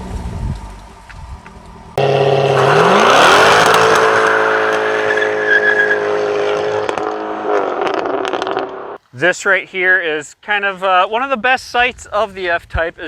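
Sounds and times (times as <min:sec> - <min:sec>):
sports car engine revving: 0:02.0 - 0:09.0.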